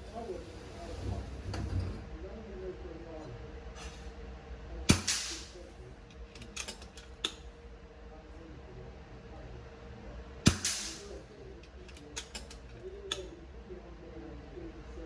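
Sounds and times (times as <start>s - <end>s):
air rifle shot: 4.9s - 5.6s, 10.5s - 11.2s.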